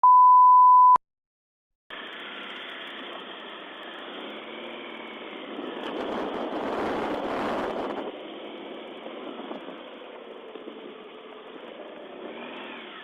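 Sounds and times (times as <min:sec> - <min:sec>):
loud steady beep: 0:00.0 - 0:01.0
engine and traffic hum: 0:01.9 - 0:13.0.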